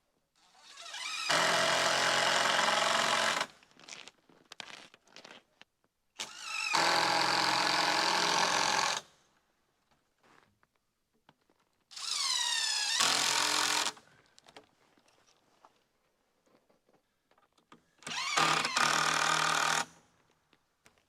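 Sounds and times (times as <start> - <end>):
cordless drill driving screws: 0.5 - 3.5, 6.2 - 9.1, 11.9 - 14.0, 18.0 - 20.0.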